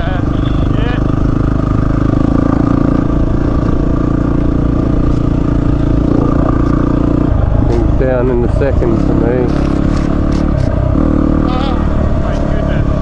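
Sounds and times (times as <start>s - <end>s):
motorcycle engine under load: 0.0s - 13.0s.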